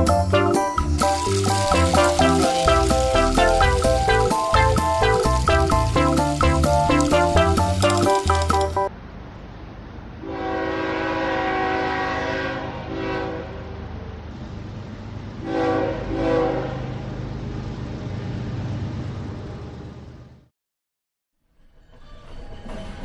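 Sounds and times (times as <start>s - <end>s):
train rumbling: 0.0s - 20.4s, 21.6s - 23.0s
train horn blasts: 1.2s - 4.4s, 10.2s - 13.9s, 15.4s - 17.0s.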